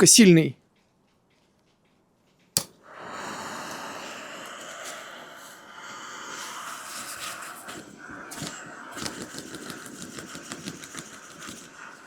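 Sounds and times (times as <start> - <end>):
gas stove hissing: 2.6 - 12.0
foam pad fanning air: 2.8 - 12.0.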